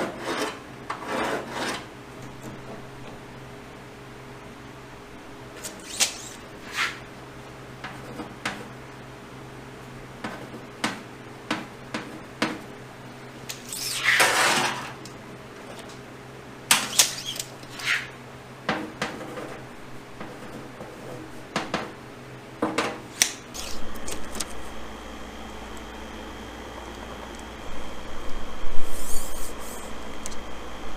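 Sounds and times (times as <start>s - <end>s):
scraping rasp: 0.0s - 1.9s
steady low hum: 0.0s - 30.9s.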